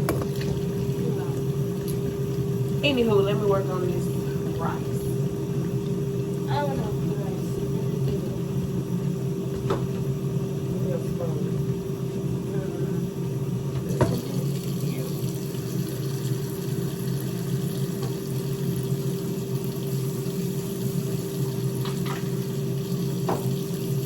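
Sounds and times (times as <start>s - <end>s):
running tap: 0.0s - 8.3s, 13.8s - 24.0s
kitchen hum: 0.0s - 24.0s.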